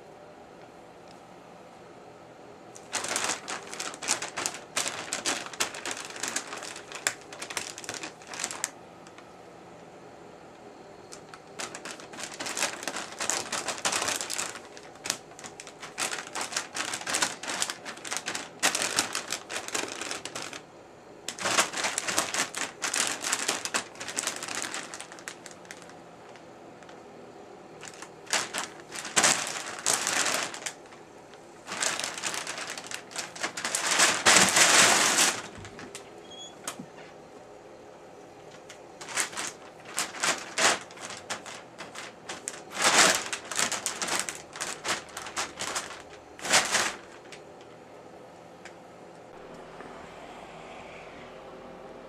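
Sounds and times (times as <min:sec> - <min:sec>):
plastic bag crinkling: 0:02.7 - 0:09.3, 0:11.0 - 0:27.0, 0:27.7 - 0:36.9, 0:38.4 - 0:47.8.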